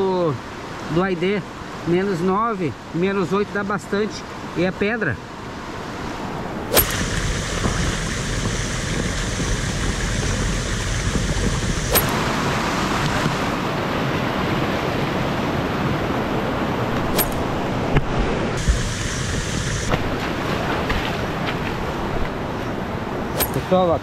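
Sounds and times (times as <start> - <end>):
stream water rushing over rocks: 5.6 - 24.0
sharp clicks: 6.7 - 12.3, 23.4 - 23.7.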